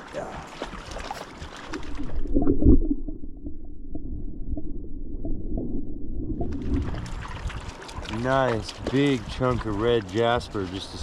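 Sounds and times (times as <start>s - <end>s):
creek water splashing: 0.0s - 3.2s, 6.4s - 11.0s
muffled underwater rumble and gurgle: 0.0s - 11.0s.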